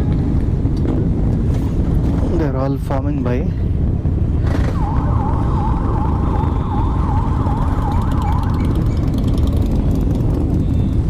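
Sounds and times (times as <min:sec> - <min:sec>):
siren yelping: 0:04.7 - 0:09.2
motorcycle engines idling: 0:07.4 - 0:11.0.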